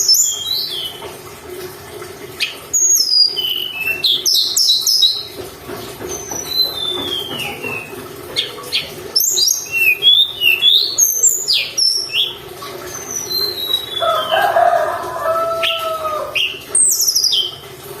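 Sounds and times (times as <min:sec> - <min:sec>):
bird chirps and whistles: 0:02.4 - 0:05.3, 0:08.7 - 0:14.4.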